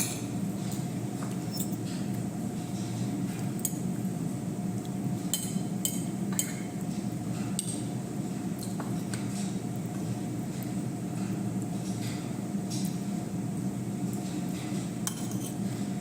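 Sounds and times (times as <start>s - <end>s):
utensils clinking against a dish: 0.0s - 2.1s, 5.3s - 6.8s, 15.0s - 15.7s.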